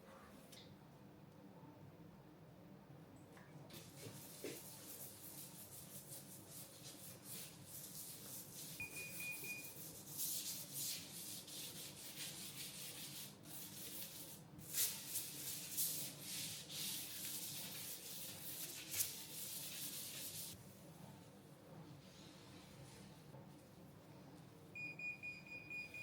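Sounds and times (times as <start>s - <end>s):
scrubbing against a surface: 9.6s - 20.6s.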